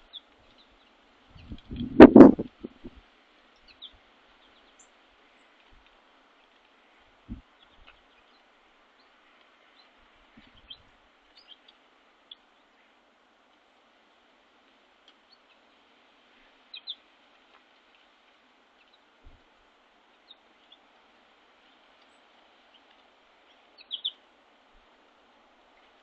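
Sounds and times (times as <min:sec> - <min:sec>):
soft steady hiss: 0:00.0 - 0:26.0
small birds chirping: 0:03.6 - 0:06.7, 0:07.3 - 0:13.0, 0:16.4 - 0:17.1, 0:18.7 - 0:19.2, 0:20.0 - 0:20.9, 0:21.6 - 0:24.2.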